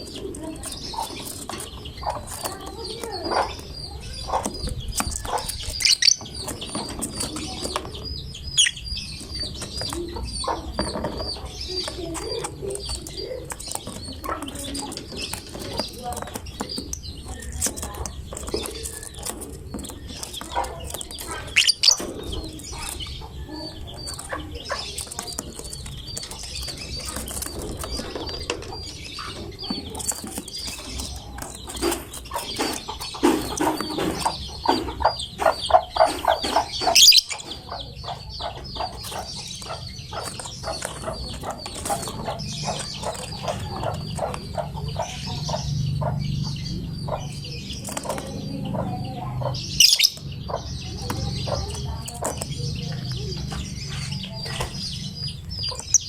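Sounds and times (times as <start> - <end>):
lovebird shrill chirping: 37.0 - 37.4, 49.8 - 50.2.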